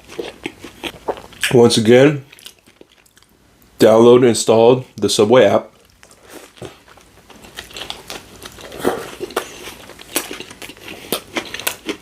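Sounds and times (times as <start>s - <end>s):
chewing sandwich with crunches: 0.0s - 1.5s, 5.8s - 12.0s.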